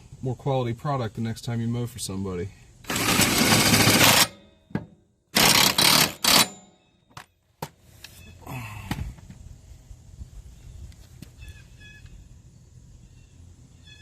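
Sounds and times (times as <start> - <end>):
impact wrench hammering: 2.9 - 6.7.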